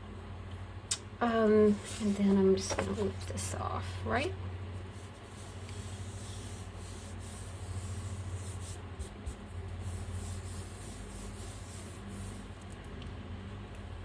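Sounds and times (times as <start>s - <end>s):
steady low hum: 0.0s - 14.0s
hands rubbing paper: 4.8s - 12.6s.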